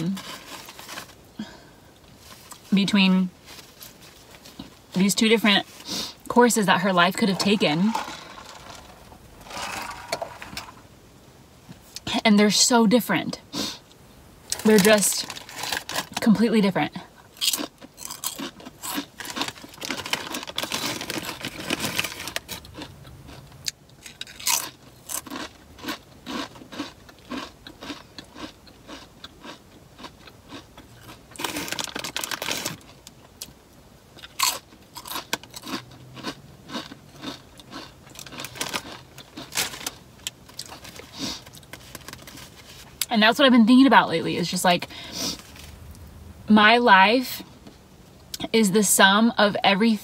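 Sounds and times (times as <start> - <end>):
crunchy chewing of chips: 7.0 - 10.8, 14.5 - 16.2, 17.3 - 33.6, 34.2 - 43.1.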